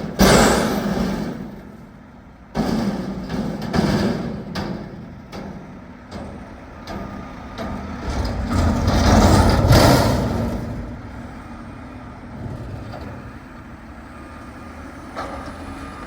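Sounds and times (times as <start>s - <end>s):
sharp metal bangs: 0.1s - 1.6s
garbage truck engine revving: 6.7s - 16.0s.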